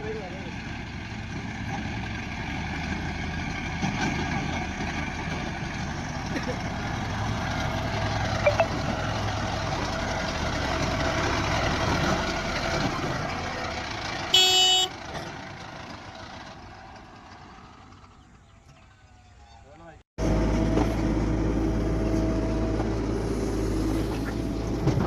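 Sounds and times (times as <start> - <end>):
heavy diesel engine running: 0.0 - 19.0, 20.2 - 25.0
short loud horn toot: 14.3 - 14.9.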